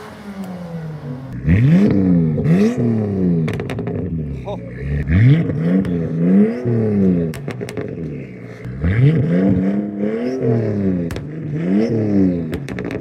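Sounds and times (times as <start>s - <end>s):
car engine revving: 0.0s - 13.0s
engine sharp pops: 1.8s - 4.2s, 5.3s - 13.0s.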